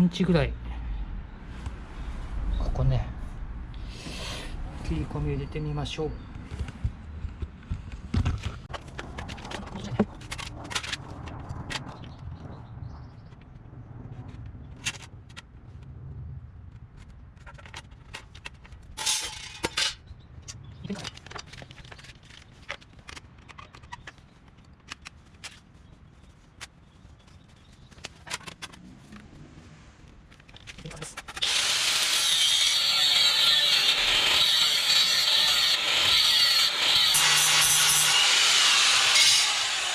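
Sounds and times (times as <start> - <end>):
metal clatter: 17.4 - 20.0
metal parts clicking and knocking: 17.5 - 20.0.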